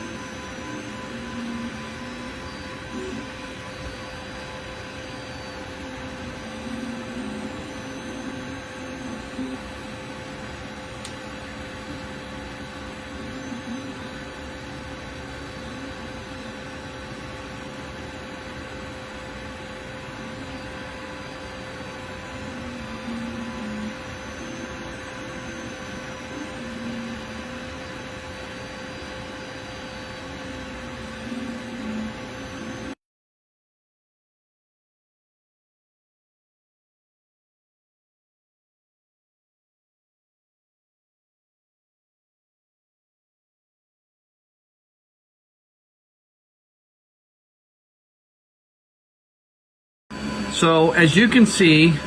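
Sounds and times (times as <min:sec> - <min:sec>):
printer fans humming: 0:00.0 - 0:33.0, 0:50.1 - 0:52.0
stepper motors whining: 0:00.0 - 0:33.0, 0:50.1 - 0:52.0
fans hissing: 0:50.1 - 0:52.0.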